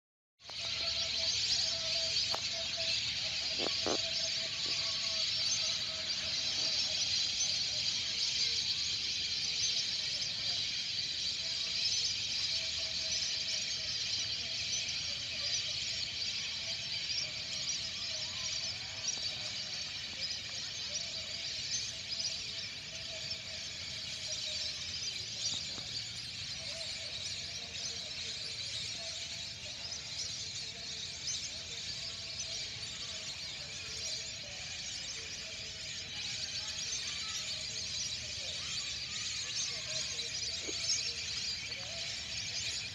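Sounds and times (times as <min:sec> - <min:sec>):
whistling ducks calling: 0:00.5 - 0:08.8.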